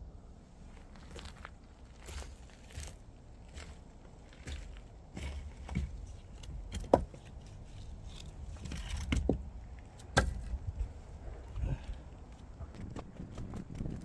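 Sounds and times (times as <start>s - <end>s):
low rustling and handling noise: 0.5s - 14.0s
sharp knocks and clunks: 4.4s - 7.4s, 8.1s - 10.9s.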